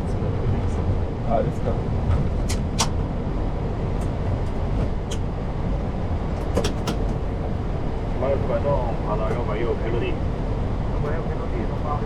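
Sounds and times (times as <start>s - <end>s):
airliner taxiing low rumble: 0.0s - 12.0s.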